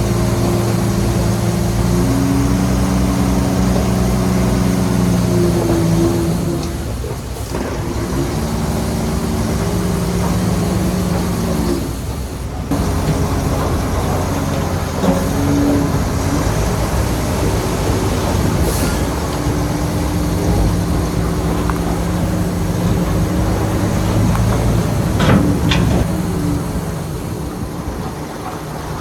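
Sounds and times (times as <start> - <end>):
diesel engine under load: 0.0 - 29.0
metallic clanks: 18.8 - 28.7.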